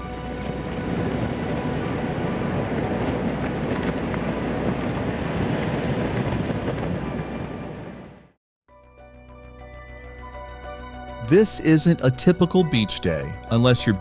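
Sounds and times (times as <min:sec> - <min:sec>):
volcano rushing noise: 0:00.0 - 0:08.2.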